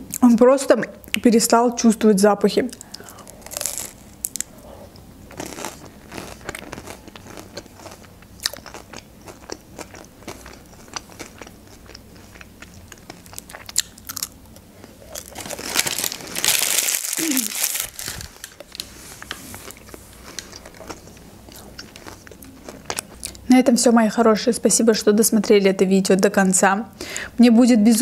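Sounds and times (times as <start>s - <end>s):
crunchy bites and chewing: 2.8s - 18.6s
rustling: 15.2s - 20.4s.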